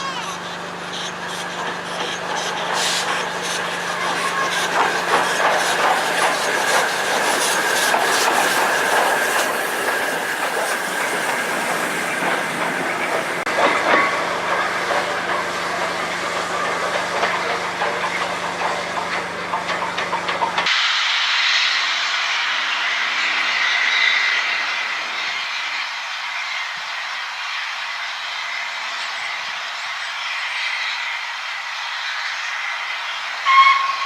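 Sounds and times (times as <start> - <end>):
wheels clicking over rail joints: 0.0 - 20.7
train hum: 0.0 - 34.0.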